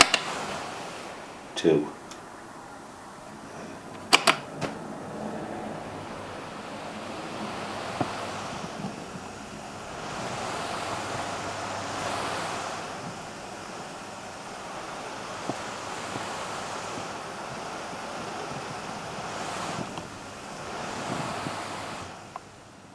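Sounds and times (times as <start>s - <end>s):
gusty wind: 0.0s - 22.9s
sharp clicks: 4.0s - 4.8s.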